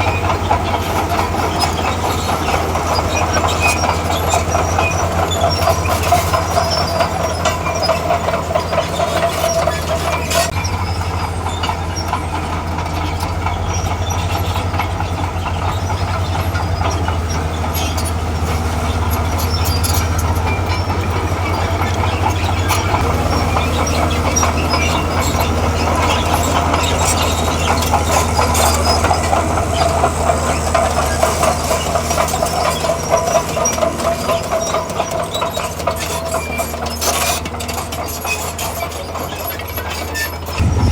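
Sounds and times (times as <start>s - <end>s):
diesel engine running: 0.0s - 40.9s
steel tracks clanking: 0.0s - 40.9s
steady whine: 40.6s - 40.9s.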